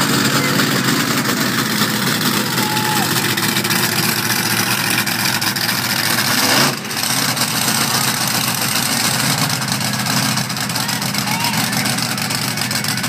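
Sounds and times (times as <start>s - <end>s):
truck engine running rough: 0.0s - 13.0s.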